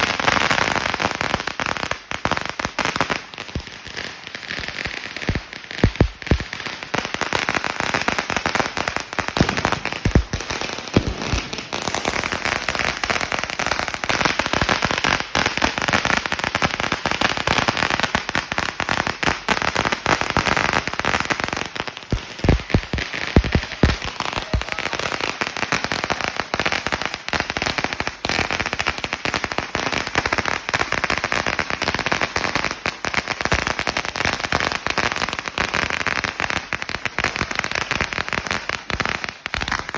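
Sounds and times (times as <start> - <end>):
firecracker roll crackling: 0.0 - 31.0
heavy firecracker bangs: 5.2 - 6.6, 9.3 - 12.2, 22.1 - 25.0.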